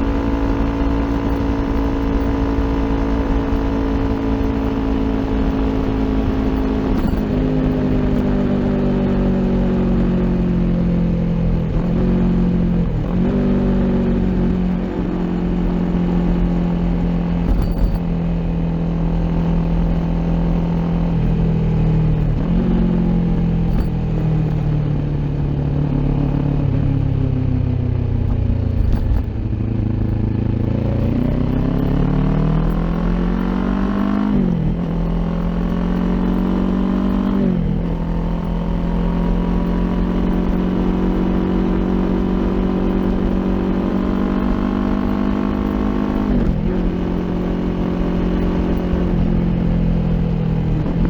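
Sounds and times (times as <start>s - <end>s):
motorcycle engine under way: 0.0s - 51.0s.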